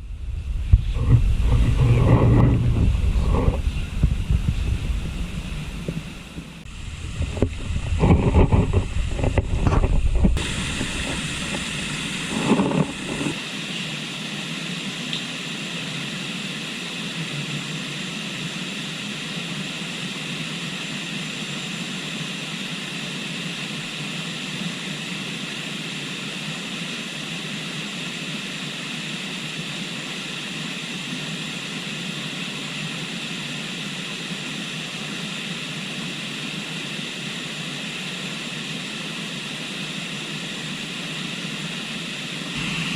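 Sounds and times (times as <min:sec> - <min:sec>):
microphone rumbles and bumps: 0:00.0 - 0:13.4
river flowing: 0:10.4 - 0:13.4, 0:42.5 - 0:42.9.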